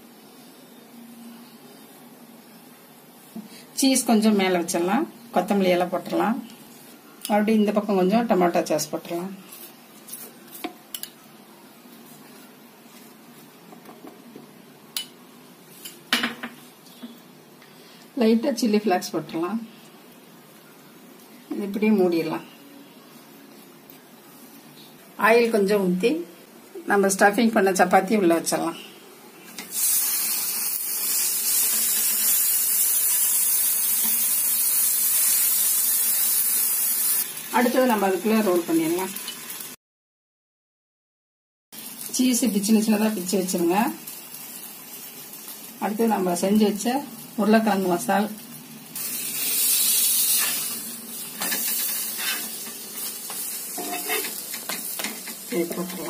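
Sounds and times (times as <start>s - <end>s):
oil sizzling: 29.4s - 39.8s, 41.8s - 56.0s
metal spatula scraping pan: 51.4s - 56.0s.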